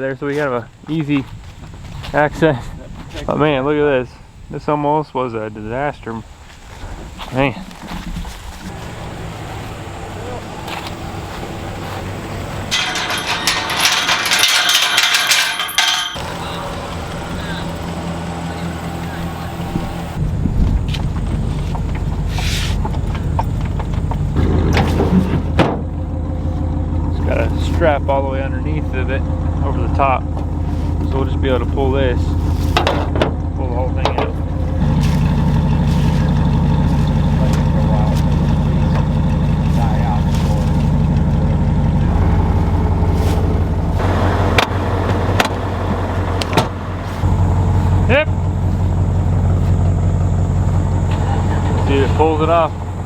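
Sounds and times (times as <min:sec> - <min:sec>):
engine idling: 0:08.6 - 0:53.0
sharp knocks and clanks: 0:12.4 - 0:16.6, 0:32.7 - 0:33.4.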